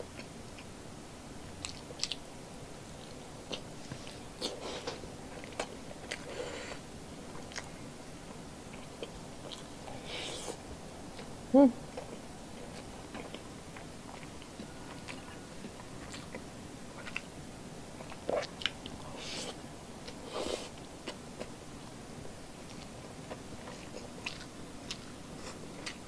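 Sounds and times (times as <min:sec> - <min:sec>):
close chewing with mouth clicks: 0:01.6 - 0:02.3, 0:02.9 - 0:07.8, 0:08.7 - 0:11.3, 0:11.9 - 0:17.3, 0:18.0 - 0:21.6, 0:22.6 - 0:26.0.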